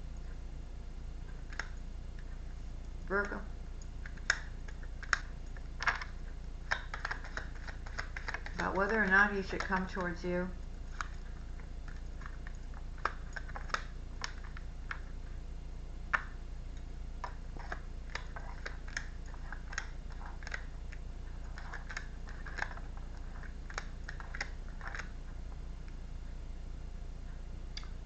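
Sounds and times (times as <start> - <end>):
steady low hum: 0.0 - 28.0
cards being shuffled: 6.7 - 10.2.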